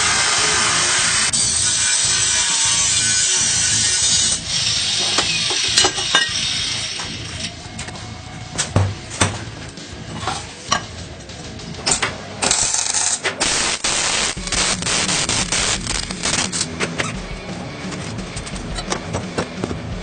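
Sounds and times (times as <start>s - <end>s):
power tool hissing and grinding: 0.0s - 7.5s, 12.5s - 16.7s.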